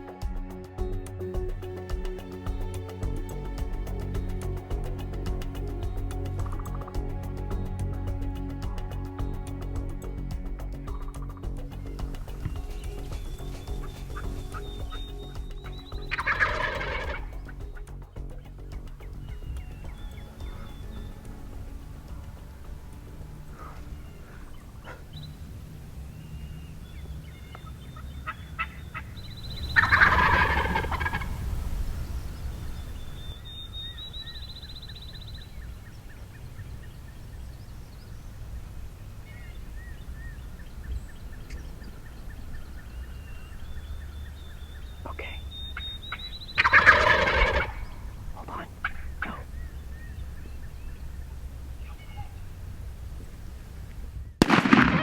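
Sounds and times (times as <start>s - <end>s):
turkey gobbling: 15.9s - 17.8s, 27.2s - 37.6s, 39.3s - 52.5s.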